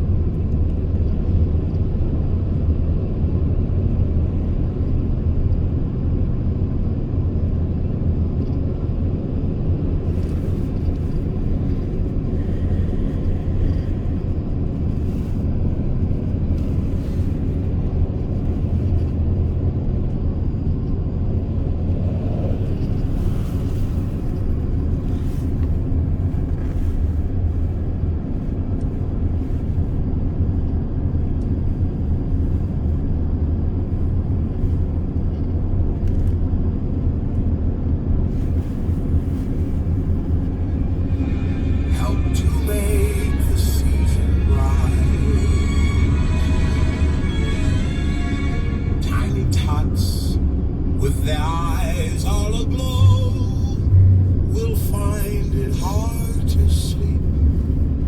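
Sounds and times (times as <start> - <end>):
van engine and road noise: 0.0 - 58.0.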